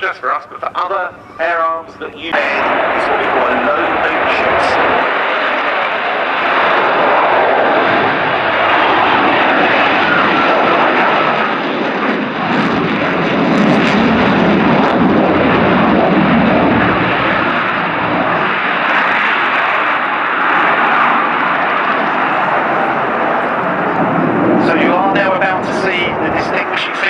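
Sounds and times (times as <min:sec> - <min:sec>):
loud jet noise: 0:00.0 - 0:27.0.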